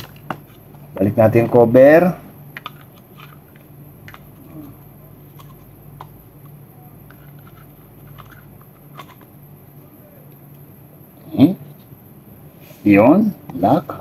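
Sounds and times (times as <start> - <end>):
low steady hum: 0.0 - 14.0
plastic parts clicking and tapping: 2.6 - 4.7, 5.3 - 9.3.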